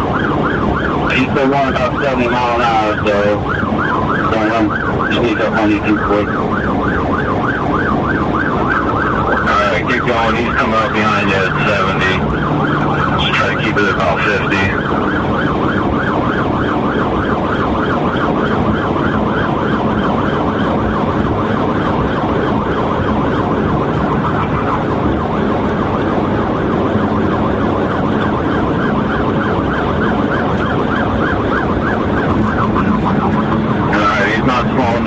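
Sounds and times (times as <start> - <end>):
engine and road noise: 0.0 - 35.0
police siren yelping: 0.0 - 35.0.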